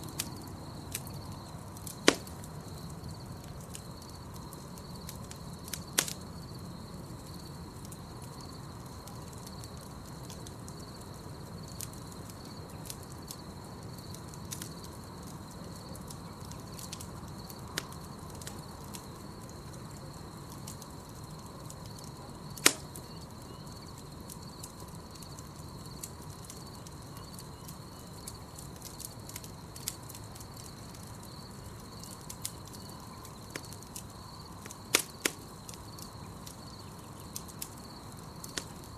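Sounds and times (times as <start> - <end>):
campfire crackling: 0.0 - 38.9
insects chirring: 0.0 - 38.9
wood popping and snapping: 1.8 - 2.6, 22.6 - 23.0, 34.6 - 35.8.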